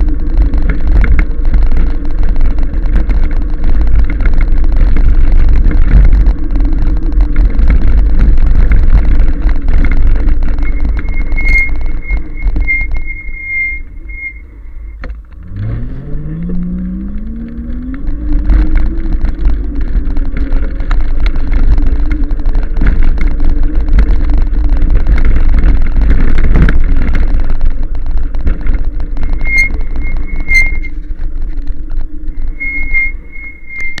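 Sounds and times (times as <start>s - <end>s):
wind rumbling on microphone: 0.0s - 34.0s
thin high whine: 10.5s - 15.1s, 29.2s - 31.1s, 32.2s - 34.0s.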